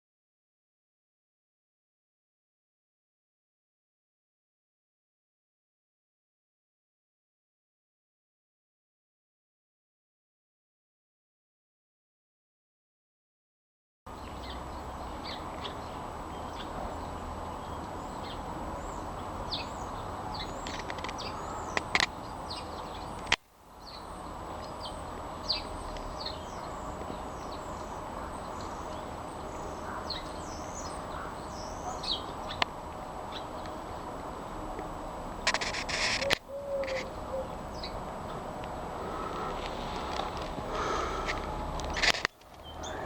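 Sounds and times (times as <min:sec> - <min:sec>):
small birds chirping: 0:14.1 - 0:34.6, 0:35.4 - 0:43.0.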